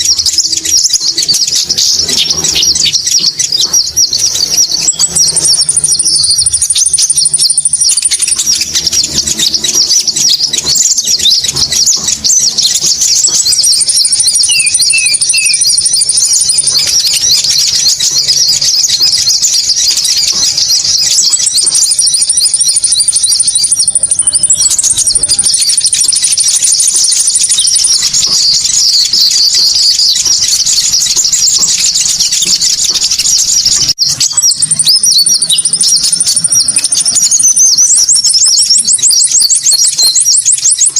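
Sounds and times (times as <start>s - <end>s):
birds chattering and twittering: 0.0s - 40.9s
thin high whistle: 21.6s - 28.2s.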